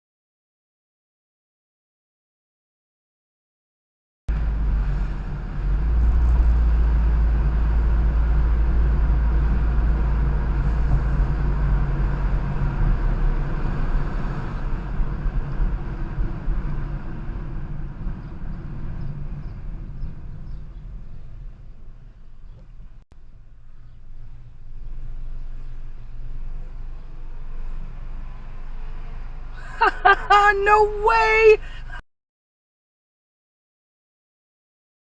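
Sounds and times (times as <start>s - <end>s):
car engine and tyre rumble: 4.3s - 32.0s.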